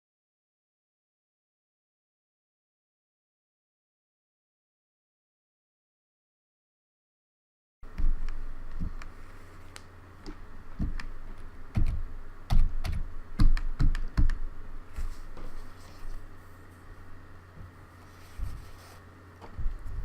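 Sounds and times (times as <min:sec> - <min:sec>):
keyboard keys clicking: 0:11.7 - 0:14.4.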